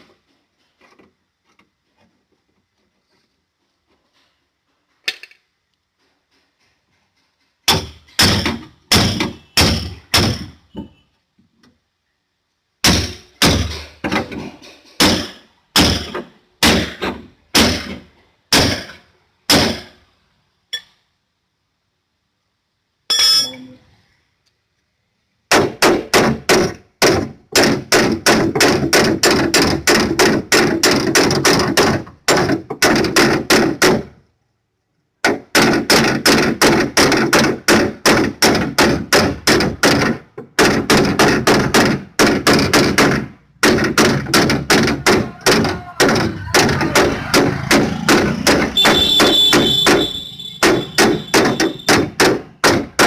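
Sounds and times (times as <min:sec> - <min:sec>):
hammer blows on sheet metal: 0:35.2 - 0:53.0.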